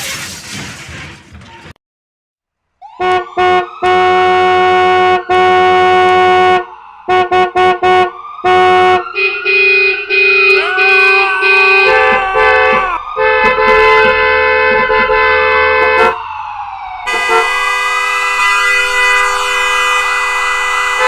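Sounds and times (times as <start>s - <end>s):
crash noise: 0.0s - 1.4s
train horn blasts: 3.0s - 16.2s, 17.1s - 21.0s.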